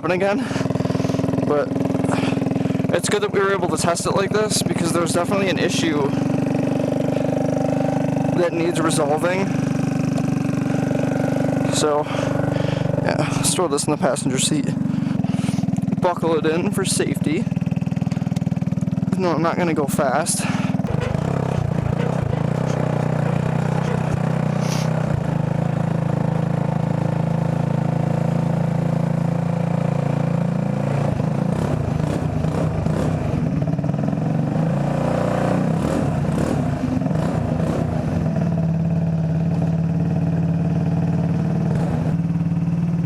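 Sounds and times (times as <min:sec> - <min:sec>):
go-kart engine running: 0:00.0 - 0:43.0
knocks and rattles: 0:20.8 - 0:24.4.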